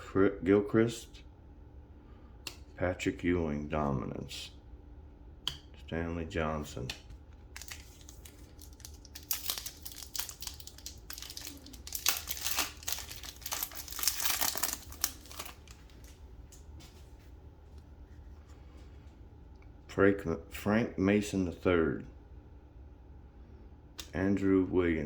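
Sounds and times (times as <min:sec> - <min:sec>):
plastic wrapper crinkling and tearing: 0:07.4 - 0:16.6.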